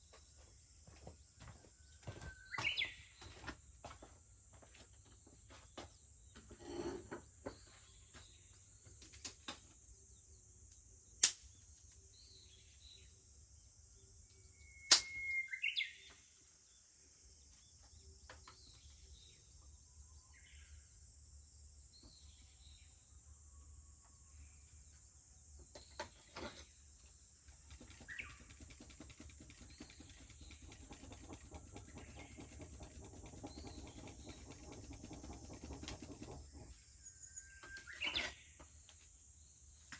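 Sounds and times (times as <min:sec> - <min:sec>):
small birds chirping: 0:00.4 - 0:04.0, 0:07.4 - 0:19.7, 0:24.6 - 0:39.9.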